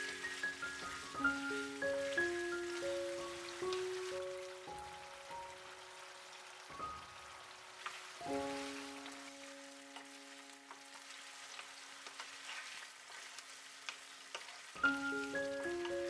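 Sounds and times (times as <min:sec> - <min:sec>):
background music chord: 0:00.0 - 0:11.4, 0:14.8 - 0:16.0
curry sizzling in a wok: 0:00.0 - 0:16.0
wooden spatula stirring: 0:10.7 - 0:16.0.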